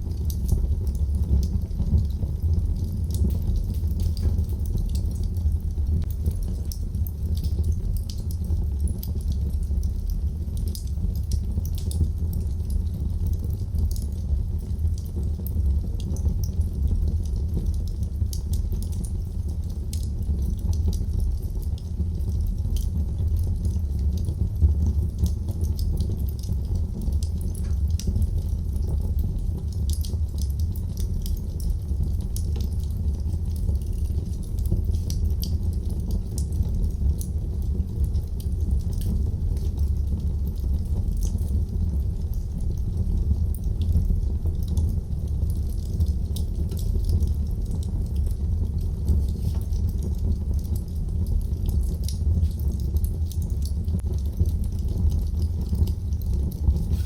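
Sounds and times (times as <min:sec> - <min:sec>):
fire flames rumbling: 0:00.0 - 0:57.0
wood crackling and popping: 0:00.0 - 0:57.0.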